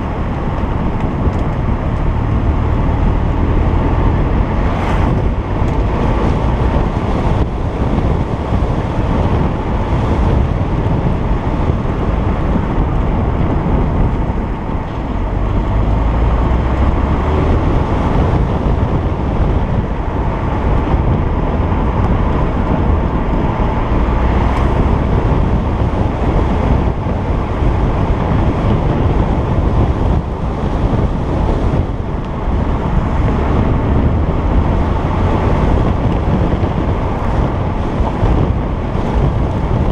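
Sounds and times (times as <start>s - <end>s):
car engine: 0.0s - 39.9s
road noise: 0.0s - 39.9s
wind rumbling on microphone: 0.0s - 39.9s.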